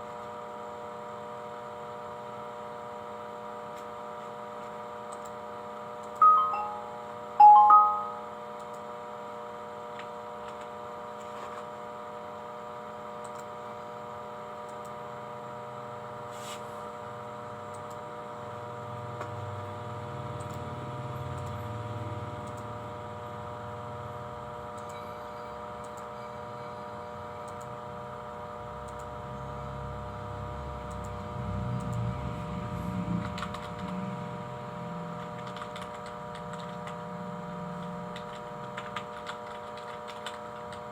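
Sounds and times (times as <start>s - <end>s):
electrical hum: 0.0s - 40.9s.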